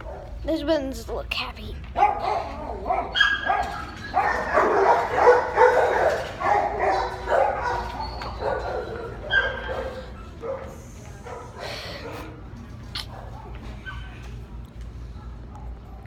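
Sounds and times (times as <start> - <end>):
dogs barking: 0.0 - 0.5, 1.9 - 16.0.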